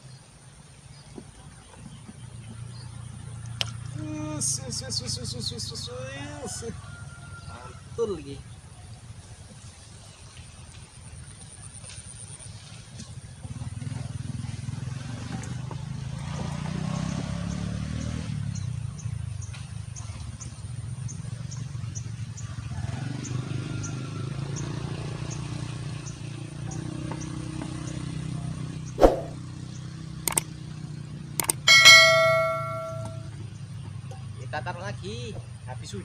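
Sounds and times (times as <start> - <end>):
sharp clicks: 30.3 - 30.5, 31.4 - 31.6
metallic ding ringing: 31.4 - 33.3.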